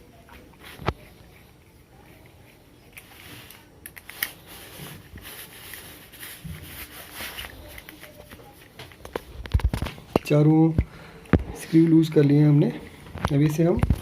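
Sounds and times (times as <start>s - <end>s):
screwdriver clicking and scraping: 2.9s - 4.4s.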